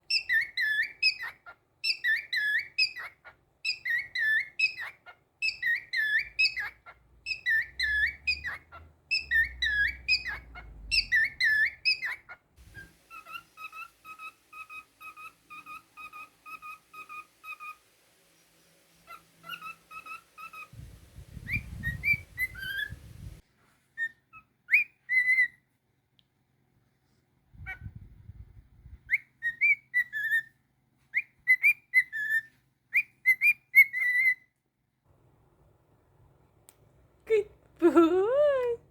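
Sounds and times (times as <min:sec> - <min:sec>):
cockatiel whistling a tune: 0:00.1 - 0:17.8, 0:19.0 - 0:23.4, 0:24.0 - 0:25.7, 0:29.1 - 0:34.5.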